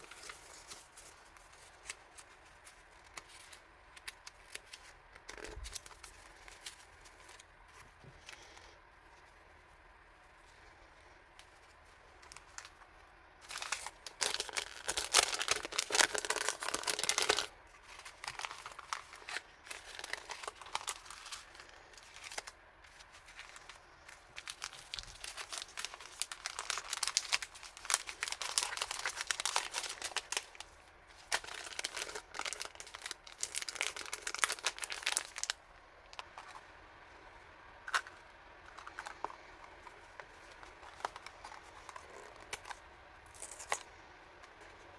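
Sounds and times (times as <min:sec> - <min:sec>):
packaging crinkled and torn: 0:00.0 - 0:07.5, 0:13.4 - 0:36.6, 0:37.9 - 0:43.9.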